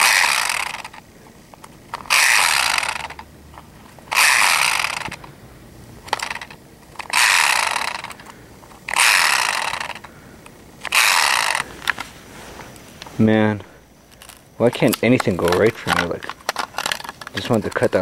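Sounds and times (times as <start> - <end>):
chainsaw starter cord pulls: 0.0 - 1.0, 1.6 - 3.3, 3.9 - 5.3, 6.1 - 10.1, 10.8 - 12.0, 14.1 - 18.0.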